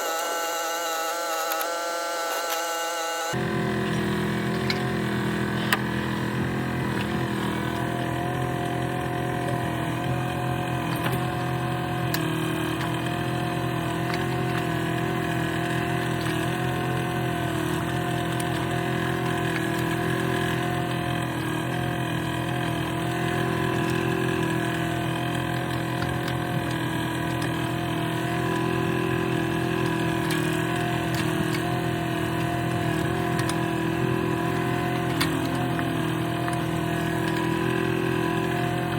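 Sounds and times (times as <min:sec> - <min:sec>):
excavator diesel engine running: 0:03.3 - 0:38.9.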